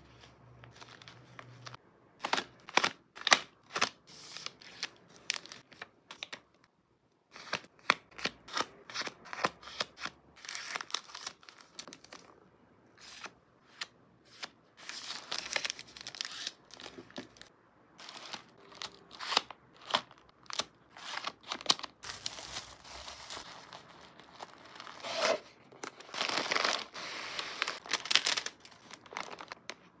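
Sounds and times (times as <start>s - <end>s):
paper and plastic crinkling: 19.8s - 29.9s.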